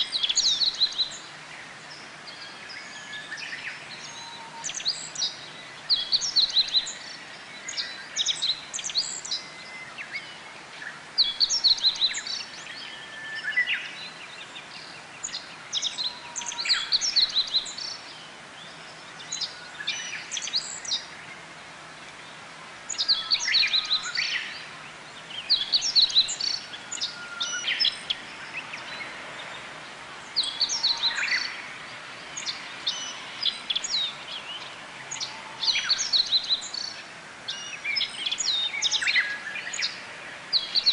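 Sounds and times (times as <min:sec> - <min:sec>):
birds twittering: 0:00.0 - 0:40.9.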